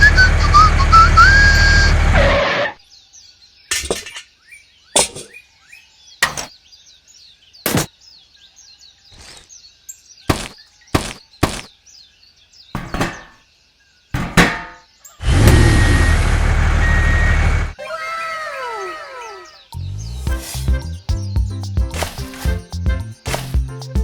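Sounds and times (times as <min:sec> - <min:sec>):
faint birds chirping: 0:02.8 - 0:24.0
sharp knocks: 0:06.2 - 0:06.5, 0:07.7 - 0:07.9, 0:10.3 - 0:11.7, 0:12.8 - 0:13.4, 0:14.2 - 0:14.8.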